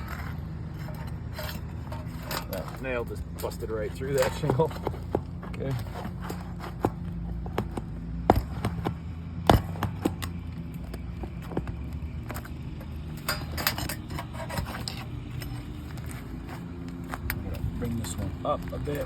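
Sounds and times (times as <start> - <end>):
scraping: 0.0 - 19.0.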